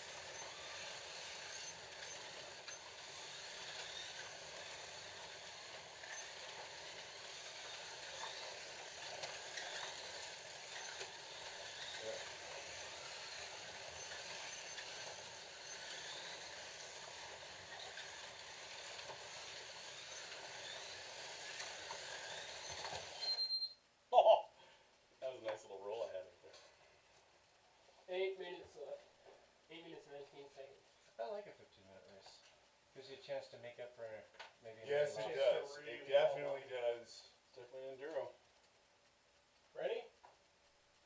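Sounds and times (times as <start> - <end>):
slot car motors whirring: 0.0 - 23.6
faint clicks: 36.7 - 41.0.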